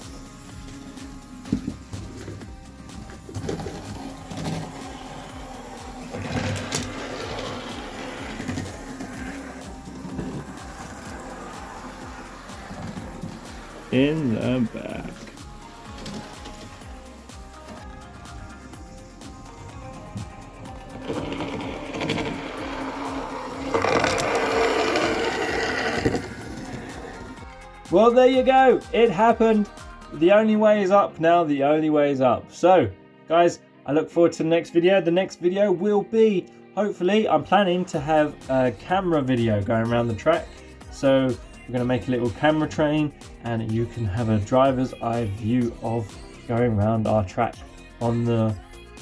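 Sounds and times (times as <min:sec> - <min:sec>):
model train motor hum: 0:04.0 - 0:15.4, 0:18.6 - 0:27.4
wheels clicking on rails: 0:20.0 - 0:27.4.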